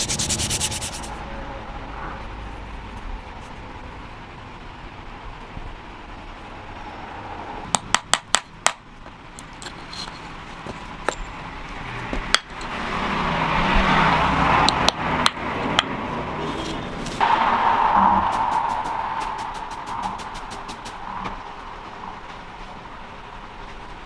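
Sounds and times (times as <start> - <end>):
steady rushing noise: 0.0 - 1.3, 17.0 - 24.0.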